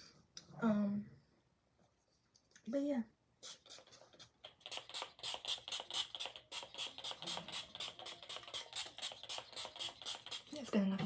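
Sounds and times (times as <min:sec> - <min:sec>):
spray bottle spritzing: 0:03.4 - 0:10.8.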